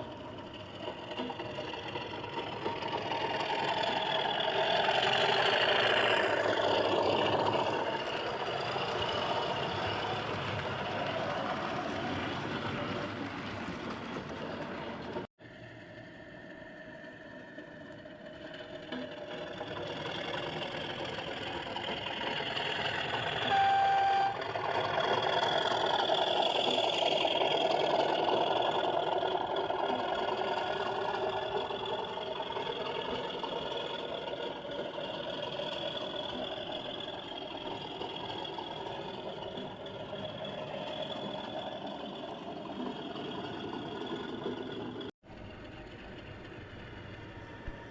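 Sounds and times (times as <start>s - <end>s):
model locomotive diesel engine: 0.0s - 47.9s
single-note horn: 23.4s - 24.4s.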